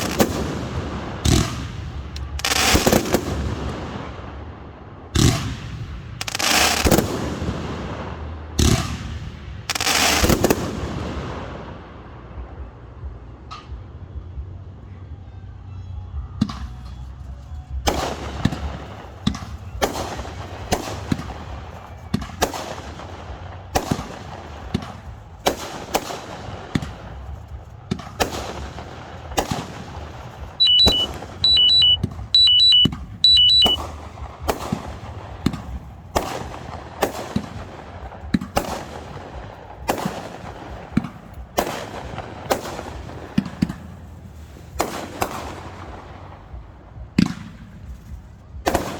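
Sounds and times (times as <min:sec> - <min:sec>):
fireworks bangs: 0:00.0 - 0:04.5, 0:05.1 - 0:12.0, 0:17.8 - 0:48.9
two-tone electronic alarm beeps: 0:30.6 - 0:33.8.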